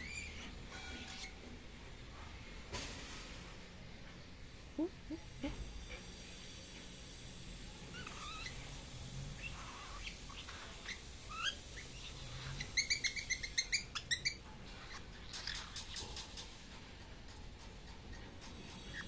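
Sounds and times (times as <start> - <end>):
young bird chirps and squeaks: 0.0 - 1.5, 7.9 - 16.6.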